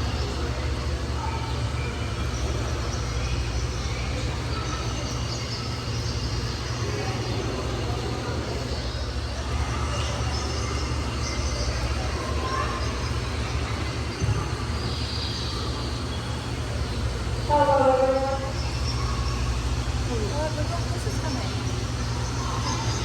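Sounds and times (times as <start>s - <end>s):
indistinct chatter of people: 0.0s - 23.0s
steady low hum: 0.0s - 23.0s.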